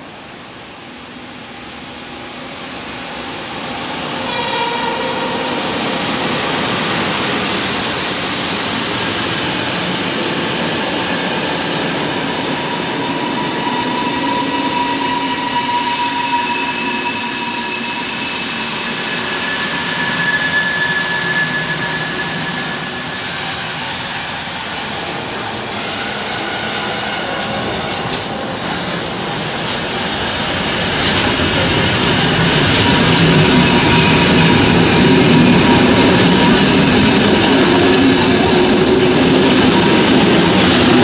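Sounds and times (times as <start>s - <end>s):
electric train running past: 0.0s - 41.0s
high wheel squeal: 9.1s - 28.5s, 31.6s - 41.0s.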